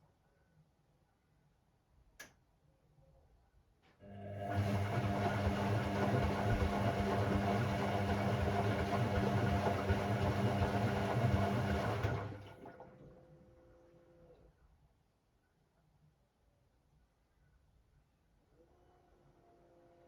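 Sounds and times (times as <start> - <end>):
washing machine humming: 4.0 - 13.2.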